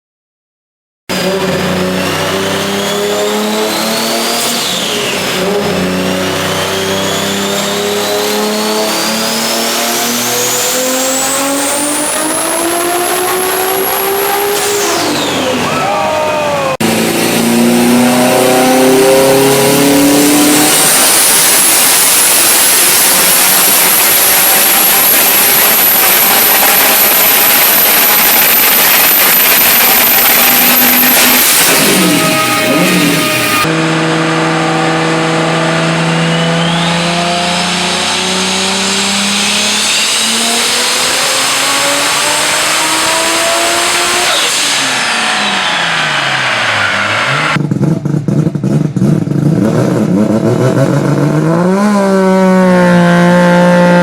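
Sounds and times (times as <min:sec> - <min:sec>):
car engine revving: 0:01.1 - 0:54.0
high steady whine: 0:20.9 - 0:33.8.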